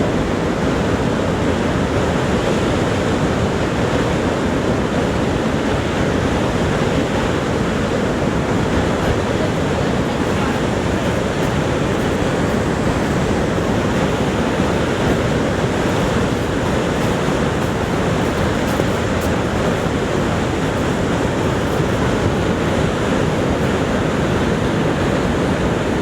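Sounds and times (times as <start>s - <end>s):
waterfall thundering: 8.3s - 24.8s.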